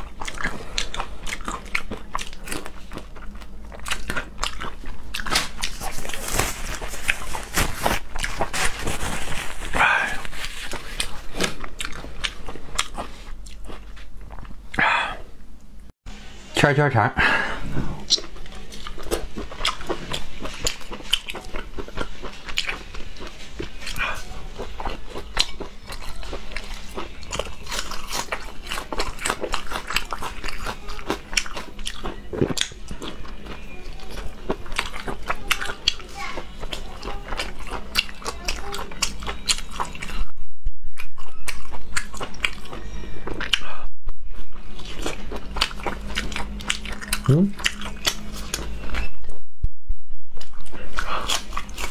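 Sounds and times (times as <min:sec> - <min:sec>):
chewing crunchy food: 0:00.0 - 0:15.0, 0:17.9 - 0:40.3, 0:41.0 - 0:43.8, 0:44.5 - 0:49.1, 0:50.4 - 0:51.9.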